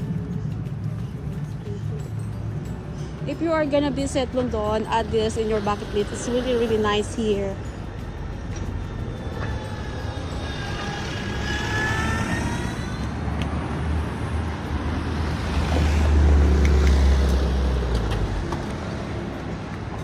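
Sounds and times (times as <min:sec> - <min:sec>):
city traffic noise: 0:00.0 - 0:20.0
vehicle passing with low rumble: 0:00.0 - 0:20.0
high squeal: 0:05.0 - 0:14.2.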